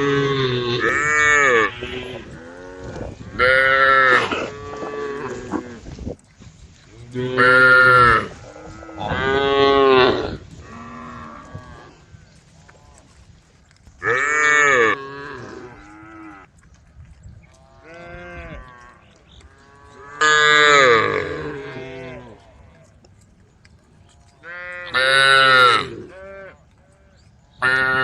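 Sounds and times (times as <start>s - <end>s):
cattle mooing: 0.0s - 5.8s, 7.1s - 12.0s, 14.0s - 16.5s, 17.6s - 22.9s, 24.2s - 26.6s.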